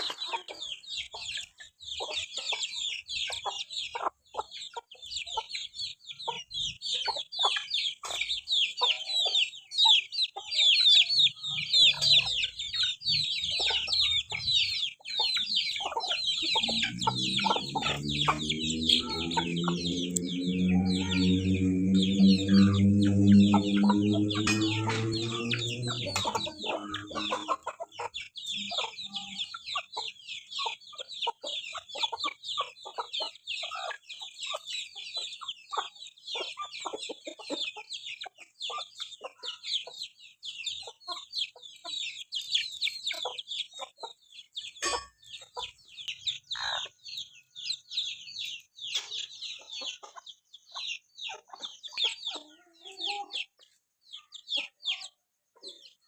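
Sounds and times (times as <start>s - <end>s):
chickens clucking: 0.0s - 56.0s
high chirping calls: 11.2s - 29.6s
background music: 16.4s - 27.6s.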